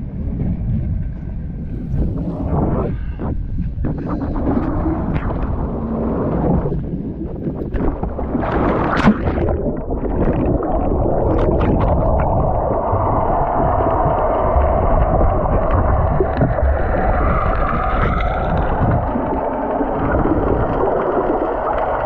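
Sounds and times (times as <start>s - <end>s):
muffled underwater rumble and gurgle: 0.0s - 22.0s
water splashing: 3.8s - 22.0s.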